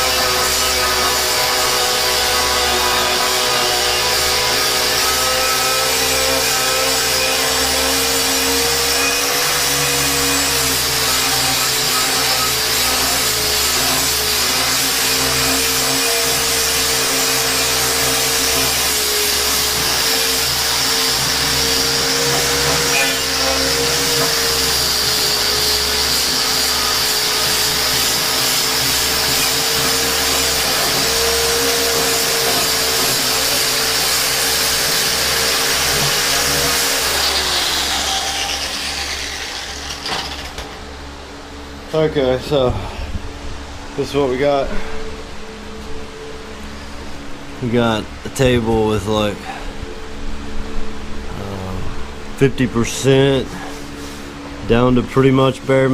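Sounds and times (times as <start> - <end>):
angle grinder motor whine: 0.0 - 41.9
abrasive grinding metal hiss: 10.6 - 40.6.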